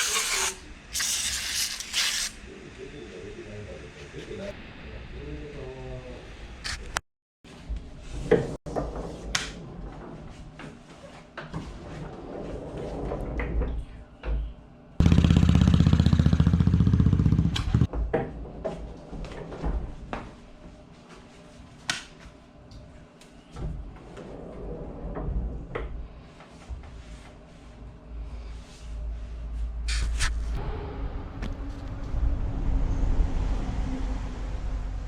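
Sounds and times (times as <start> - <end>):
chainsaw engine running: 15.0 - 17.8.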